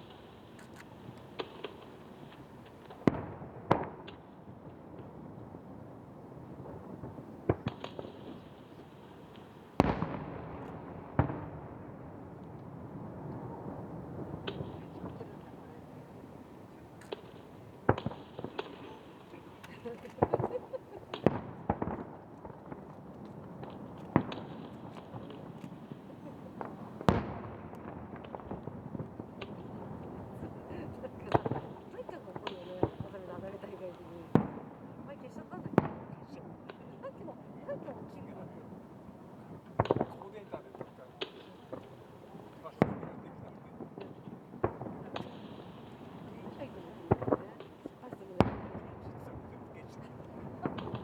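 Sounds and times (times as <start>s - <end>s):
firework crackles: 0.0s - 51.0s
firework shells bursting: 14.2s - 34.5s, 39.5s - 43.0s.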